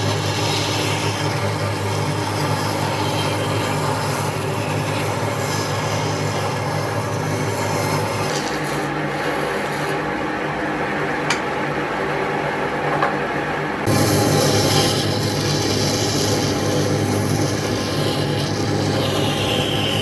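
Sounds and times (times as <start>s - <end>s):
power tool running: 13.8s - 20.0s.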